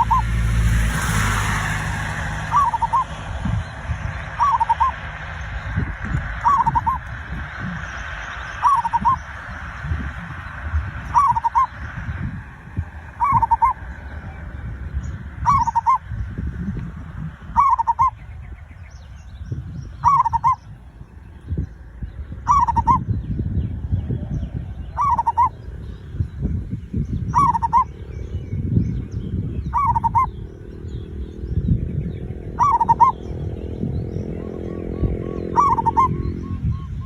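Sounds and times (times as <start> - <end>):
low rumble with soft knocks: 0.0 - 17.5
dove cooing: 0.0 - 18.2, 19.9 - 20.7, 22.4 - 23.2, 24.1 - 26.4, 27.3 - 28.2, 29.7 - 31.4, 32.3 - 37.0.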